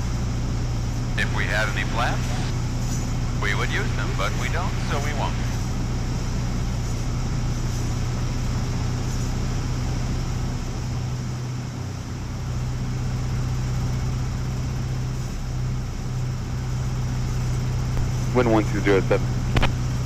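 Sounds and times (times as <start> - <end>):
light aircraft engine droning: 0.0 - 20.0.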